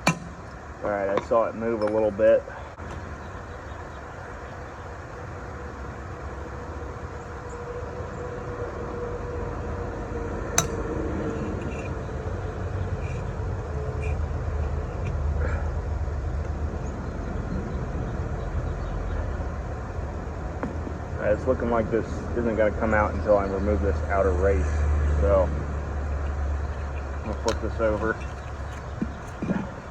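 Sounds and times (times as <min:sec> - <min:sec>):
traffic rumble: 0:00.0 - 0:29.9
sharp metallic tap: 0:10.6 - 0:10.8.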